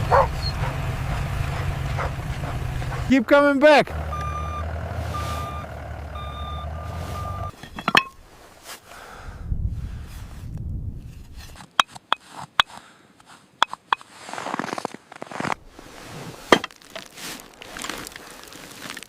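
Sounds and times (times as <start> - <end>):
low engine rumble: 0.0 - 7.9
vehicle reversing beeper: 3.9 - 7.5.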